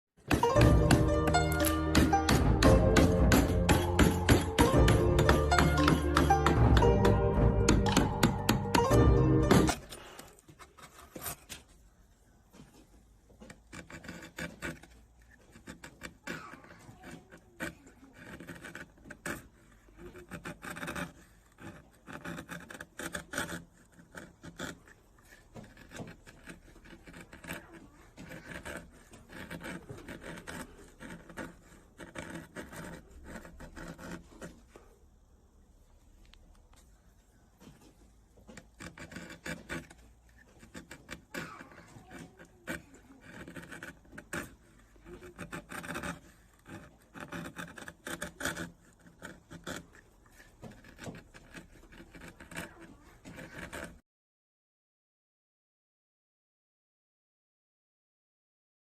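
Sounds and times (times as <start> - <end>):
hand tool scraping wood: 0.2 - 11.8, 12.5 - 35.0, 37.6 - 54.0.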